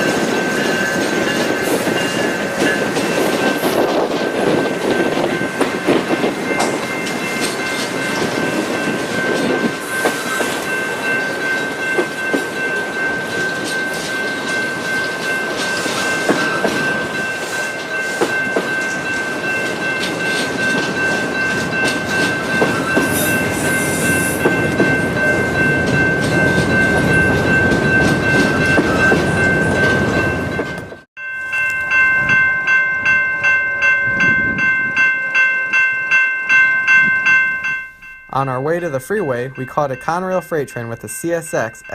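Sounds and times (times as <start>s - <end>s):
freight train wheels clicking: 0.0s - 31.9s
crossing bell ringing: 0.0s - 41.9s
high ringing tones: 0.0s - 41.9s.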